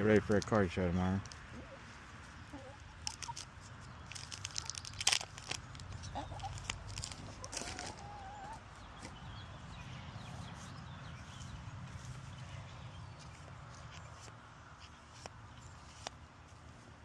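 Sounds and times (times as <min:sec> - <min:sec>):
poultry clucking: 0:01.4 - 0:04.0, 0:05.9 - 0:13.8
sharp clicks and crinkles: 0:03.0 - 0:08.0.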